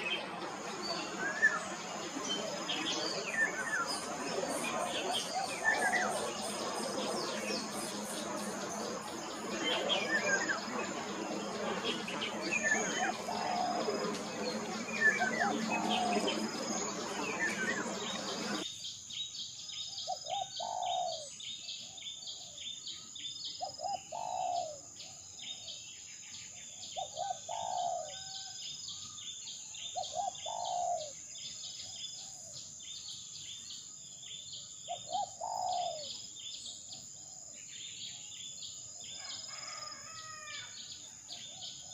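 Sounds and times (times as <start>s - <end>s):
birds chirping: 0.0s - 18.6s
rushing background hiss: 0.0s - 18.6s
steady high-pitched whine: 0.0s - 18.8s.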